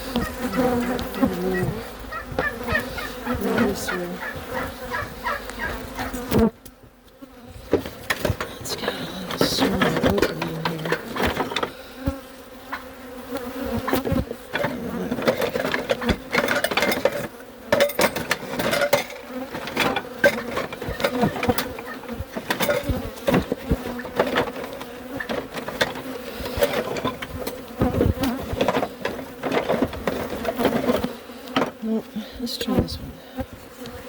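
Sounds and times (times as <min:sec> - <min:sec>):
bees buzzing: 0:00.0 - 0:34.0.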